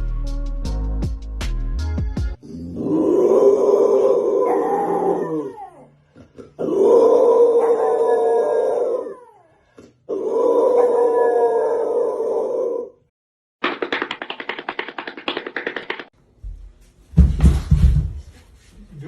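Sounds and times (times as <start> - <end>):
dog howling: 2.5 - 5.9, 6.6 - 9.5, 10.1 - 13.0.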